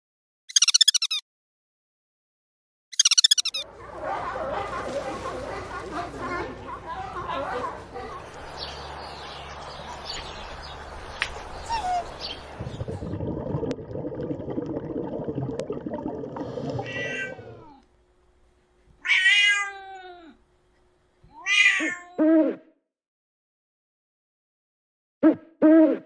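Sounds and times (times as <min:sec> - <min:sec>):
cat meowing: 0:16.8 - 0:17.8, 0:19.0 - 0:20.4, 0:21.3 - 0:22.2.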